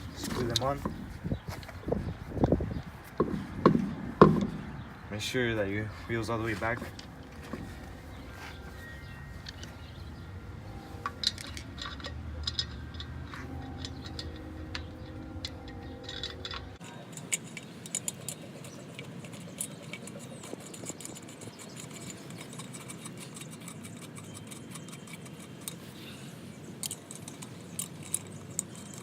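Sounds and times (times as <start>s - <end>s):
lug nuts clicking on wheel studs: 2.4s - 4.9s, 10.9s - 25.9s, 26.7s - 29.0s.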